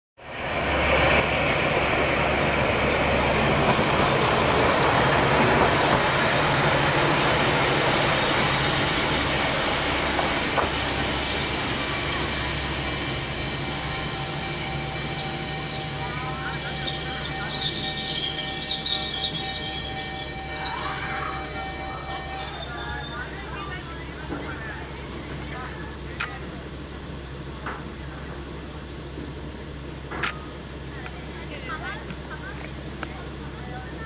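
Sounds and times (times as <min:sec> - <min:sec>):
wheel and rail noise: 0:00.2 - 0:34.0
sharp click: 0:30.2 - 0:30.4.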